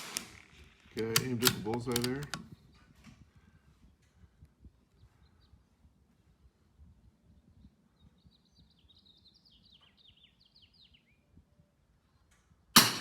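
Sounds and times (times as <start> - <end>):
bird chirping: 7.3 - 11.4.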